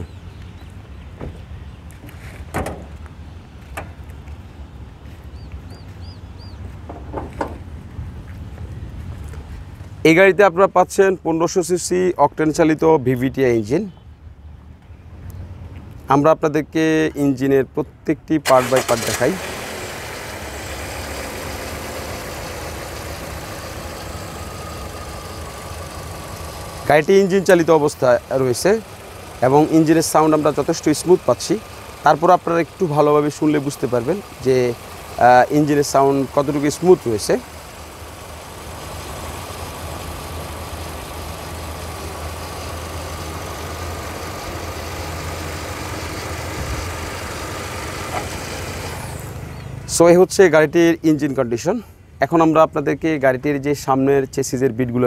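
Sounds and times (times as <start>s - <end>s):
car engine idling: 18.5s - 50.4s.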